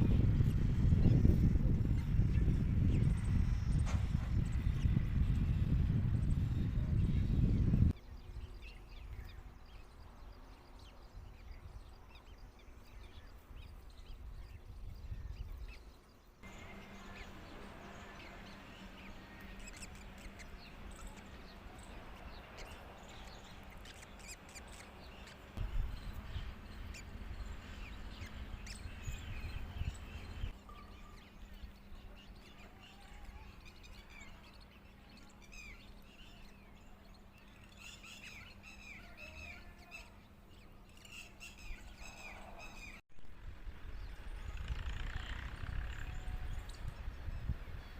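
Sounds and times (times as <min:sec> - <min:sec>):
wind rumbling on microphone: 0:00.0 - 0:34.8, 0:41.6 - 0:47.9
outdoor background noise: 0:00.0 - 0:47.9
faint bird chirps: 0:06.6 - 0:43.0.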